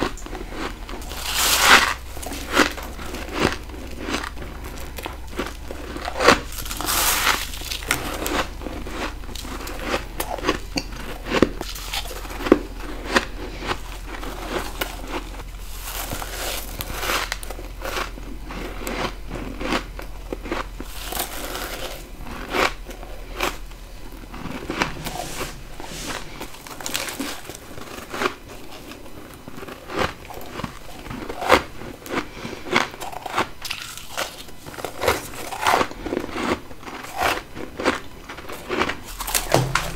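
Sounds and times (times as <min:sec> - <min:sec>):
crunching bites into frost: 0:00.0 - 0:25.6
chewing: 0:00.0 - 0:39.9
low steady hum: 0:00.0 - 0:39.9.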